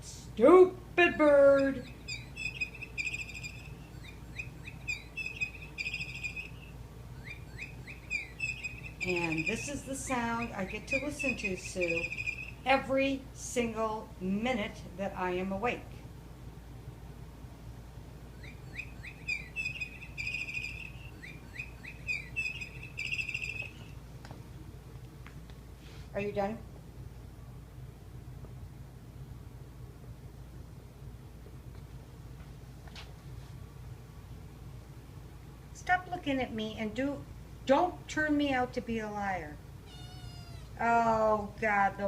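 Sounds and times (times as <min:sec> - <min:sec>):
pet bird chirping: 0:01.5 - 0:12.9, 0:18.3 - 0:24.0, 0:39.8 - 0:40.8.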